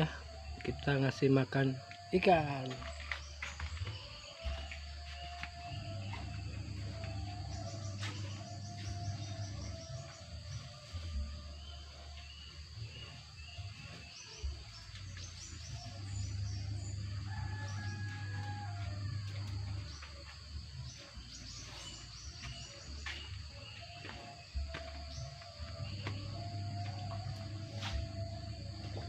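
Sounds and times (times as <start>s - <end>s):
birds chirping and calling: 0.0s - 10.7s.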